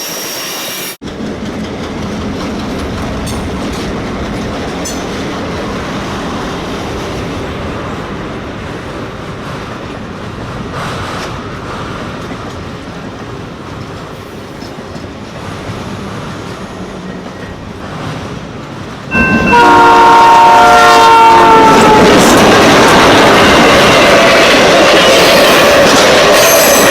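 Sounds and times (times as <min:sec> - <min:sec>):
train wheels clattering on track: 0:01.0 - 0:26.9
locomotive horn blasting: 0:19.1 - 0:22.2.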